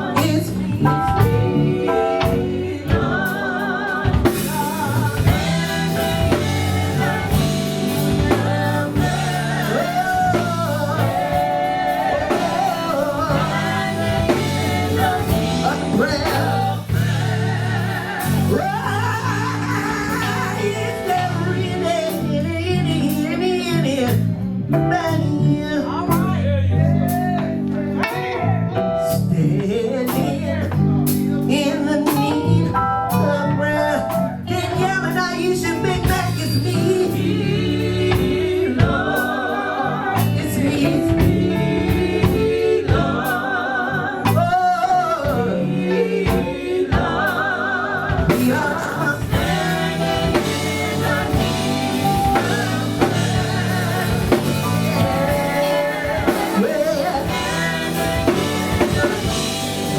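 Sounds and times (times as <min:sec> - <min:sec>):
band with drums: 0:00.0 - 0:22.4, 0:35.1 - 0:43.6, 0:44.2 - 0:59.9
gospel singing with vibrato: 0:00.0 - 0:59.9.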